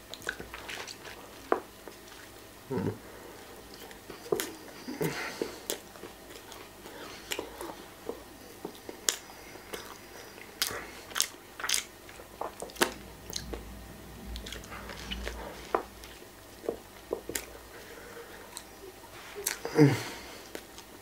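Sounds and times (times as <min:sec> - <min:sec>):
person biting and chewing: 0:10.6 - 0:13.0.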